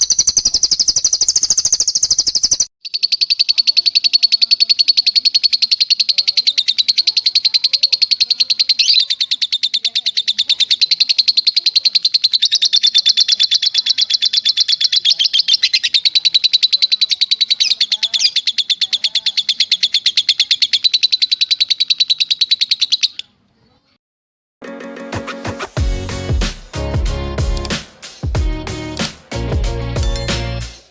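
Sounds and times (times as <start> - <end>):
songbird trilling: 0.0 - 23.3, 30.0 - 30.4.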